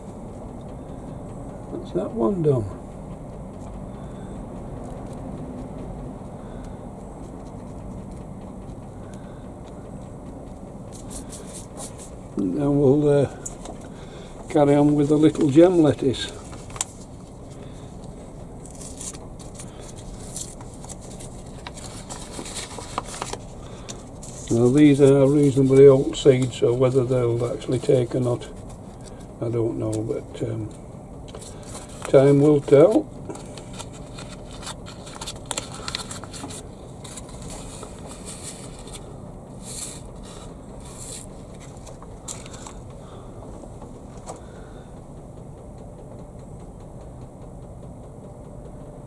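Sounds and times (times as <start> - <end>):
steady low hum: 0.0 - 49.0
hands handling seed packets: 13.4 - 43.3.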